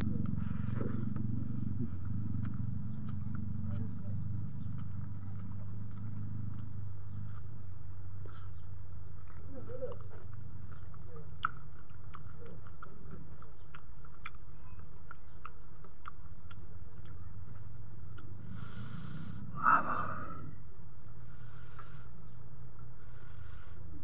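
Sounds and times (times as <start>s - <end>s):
steady low hum: 0.0s - 24.0s
person chewing: 0.2s - 20.4s
wet mouth clicks: 18.1s - 19.4s.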